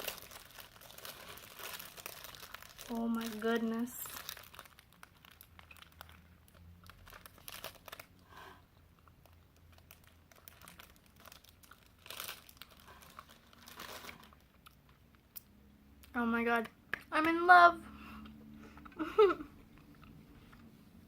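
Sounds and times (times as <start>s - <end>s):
plastic wrapper crinkling: 0.0s - 8.2s, 8.9s - 15.3s.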